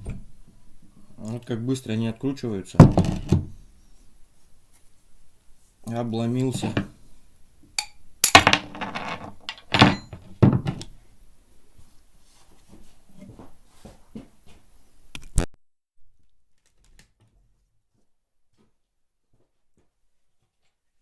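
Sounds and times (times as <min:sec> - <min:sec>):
loud thunks: 0:02.8 - 0:03.6, 0:08.4 - 0:10.8
hand tools clattering on metal: 0:07.8 - 0:10.8.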